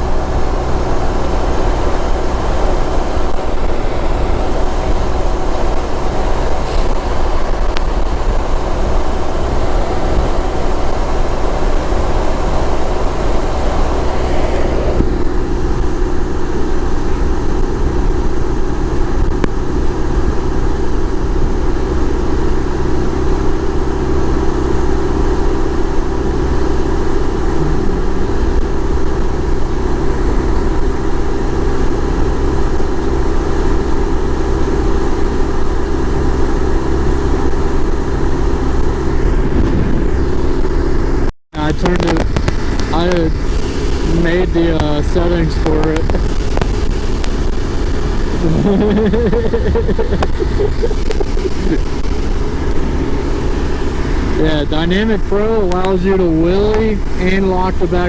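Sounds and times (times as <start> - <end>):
motorcycle engine running: 0.0 - 58.0
wind noise: 0.0 - 58.0.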